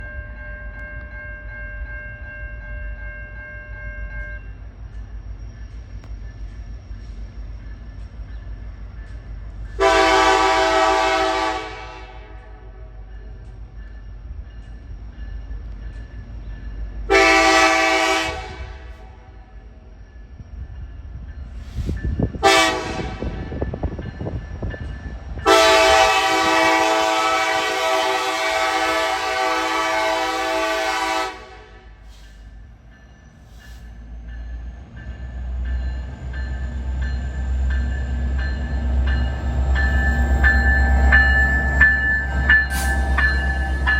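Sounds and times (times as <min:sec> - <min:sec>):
locomotive air horn blasts: 0:09.8 - 0:12.8, 0:17.1 - 0:19.2, 0:22.4 - 0:23.4, 0:25.4 - 0:32.0.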